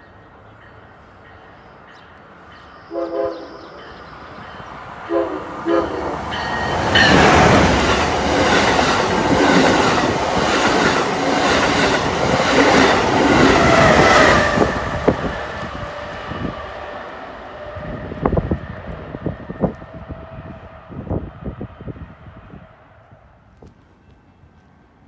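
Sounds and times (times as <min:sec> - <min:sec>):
high-speed train passing: 0:00.0 - 0:25.0
train horn blasts: 0:02.9 - 0:03.9, 0:05.0 - 0:07.2.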